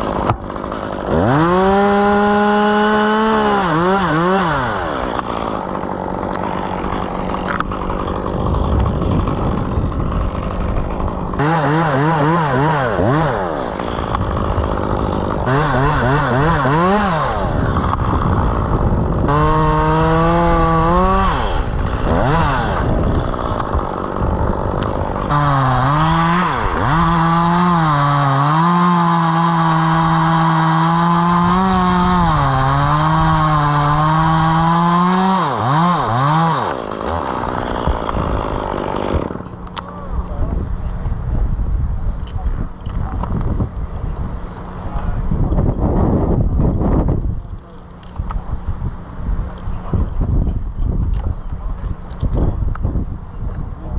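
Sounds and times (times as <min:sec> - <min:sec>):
chainsaw cutting wood: 0:00.0 - 0:40.4.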